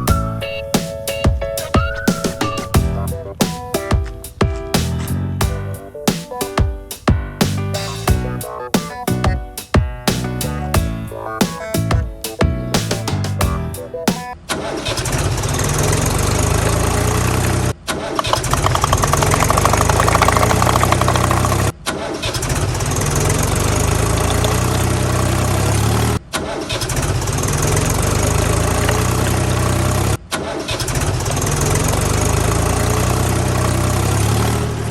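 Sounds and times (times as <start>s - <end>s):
tractor engine running: 18.2s - 21.7s.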